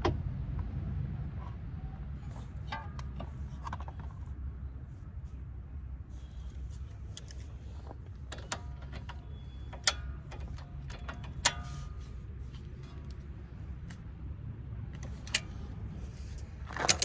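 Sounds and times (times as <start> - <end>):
metal tools clinking: 16.7 - 17.0.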